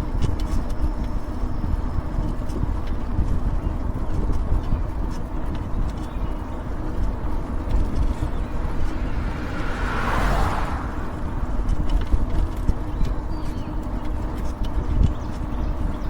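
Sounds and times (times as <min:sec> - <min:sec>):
road rumble from bike: 0:00.0 - 0:16.0
wind: 0:00.0 - 0:16.0
passing car tyre noise: 0:05.9 - 0:14.3.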